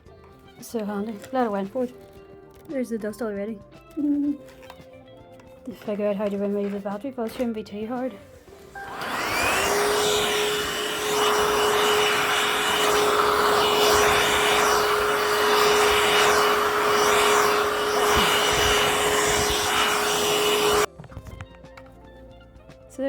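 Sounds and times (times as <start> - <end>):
vacuum motor whine: 8.6 - 20.9
rushing suction noise: 8.8 - 20.9.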